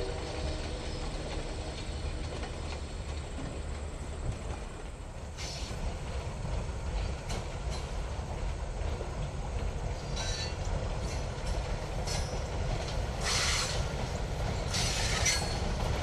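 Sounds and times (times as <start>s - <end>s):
freight train rumbling past: 0.0s - 16.0s
hissing bursts: 13.2s - 13.8s.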